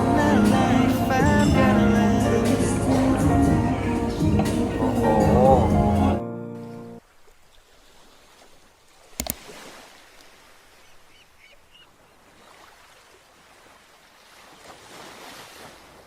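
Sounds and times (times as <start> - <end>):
sea waves on a beach: 7.0 - 16.0
sharp knock: 9.2 - 9.4.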